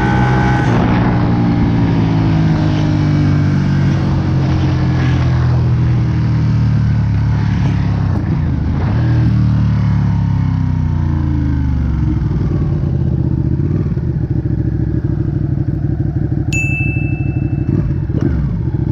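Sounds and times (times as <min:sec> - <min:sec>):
high steady tone: 0:16.5 - 0:18.1.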